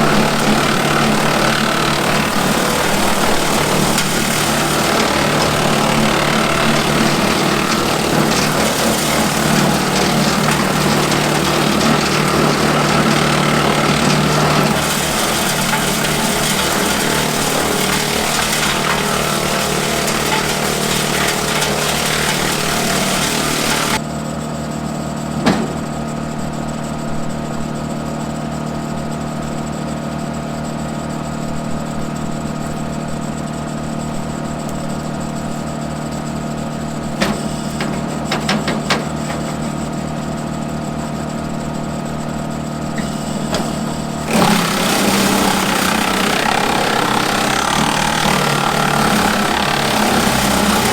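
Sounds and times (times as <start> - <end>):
diesel tractor engine running: 0.0 - 24.0
wood chipper: 0.0 - 24.1, 32.1 - 50.9.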